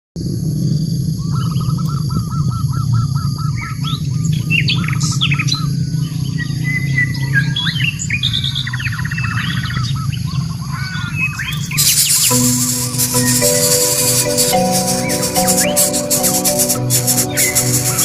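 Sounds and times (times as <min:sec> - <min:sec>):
birds chirping and calling: 0:10.8 - 0:18.0
buzzy bird trill: 0:11.4 - 0:18.0.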